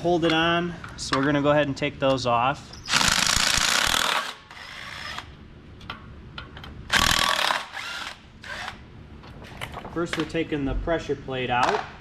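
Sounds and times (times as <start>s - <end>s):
power wrench running: 2.9s - 5.3s, 6.9s - 8.8s.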